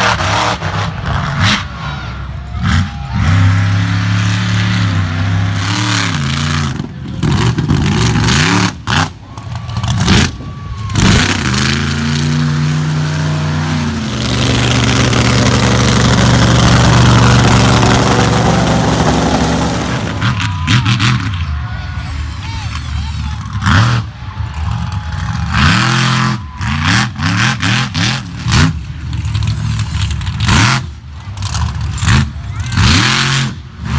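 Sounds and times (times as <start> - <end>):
monster truck engine revving: 0.0 - 21.4, 23.4 - 33.9.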